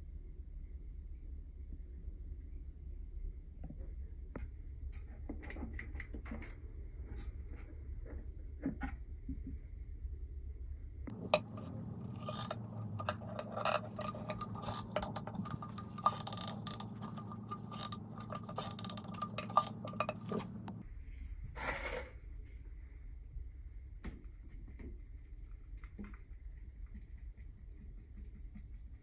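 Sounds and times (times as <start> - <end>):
steady low hum: 10.6 - 21.2
hard objects clinking and scraping: 11.1 - 20.8.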